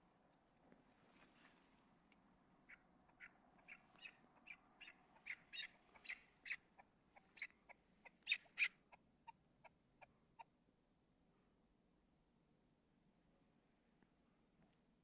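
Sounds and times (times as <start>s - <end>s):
bird calling rapidly: 2.6s - 9.8s.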